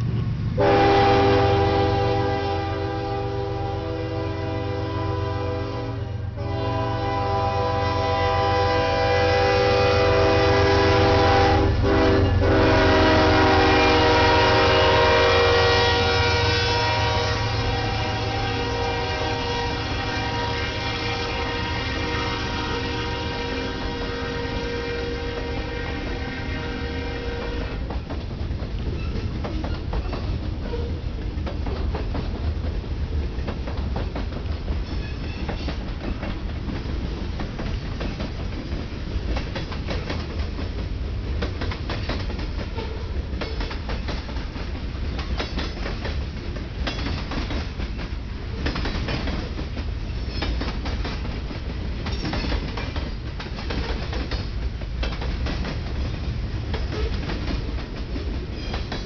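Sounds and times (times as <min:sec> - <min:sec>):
freight train rumbling: 0:00.0 - 0:59.0
wheels clicking on rails: 0:27.3 - 0:59.0.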